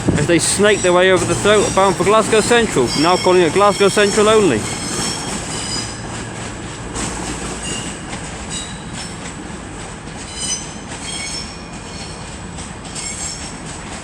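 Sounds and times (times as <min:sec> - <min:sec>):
train engine and rolling rumble: 0:00.0 - 0:14.0
wheel flanges squealing: 0:00.2 - 0:06.4, 0:07.0 - 0:09.2, 0:10.3 - 0:12.3.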